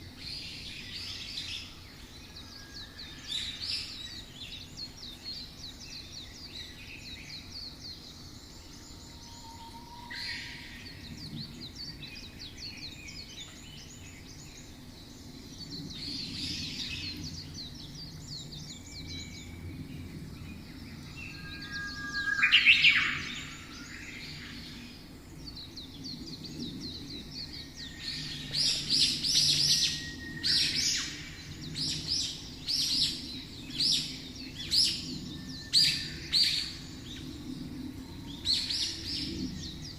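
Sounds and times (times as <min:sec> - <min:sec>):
faint low background hum: 0:00.0 - 0:39.9
songbirds chirping and trilling: 0:00.0 - 0:39.9
loud sweeping bird call: 0:21.3 - 0:24.7.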